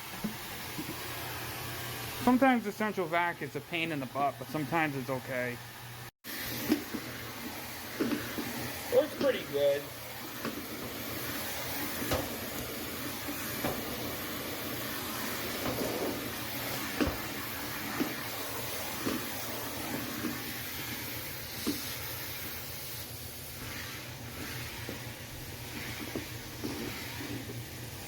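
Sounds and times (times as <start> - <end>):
vacuum hose sucking air: 6.2 - 28.0
vacuum nozzle knocking furniture: 10.2 - 20.6.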